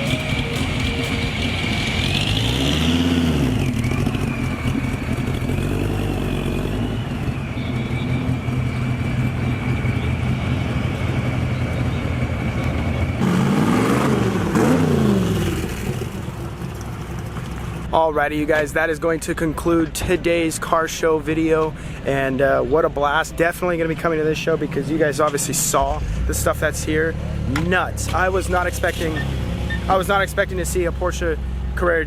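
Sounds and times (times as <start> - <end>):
steady high whine: 0.0 - 13.2
car engine revving: 0.0 - 17.8.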